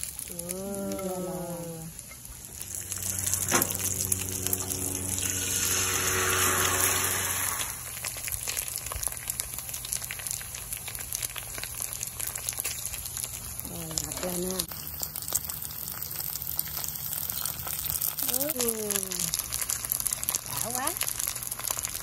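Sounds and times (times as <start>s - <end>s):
batter sizzling in oil: 0.0s - 22.0s
steady low hum: 0.3s - 8.2s.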